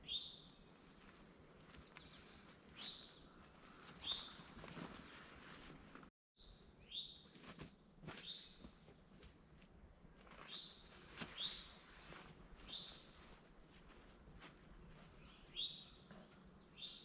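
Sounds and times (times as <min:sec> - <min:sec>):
songbird calling: 0:01.9 - 0:04.6, 0:06.4 - 0:07.3, 0:10.5 - 0:11.8, 0:12.6 - 0:13.1, 0:15.2 - 0:17.0.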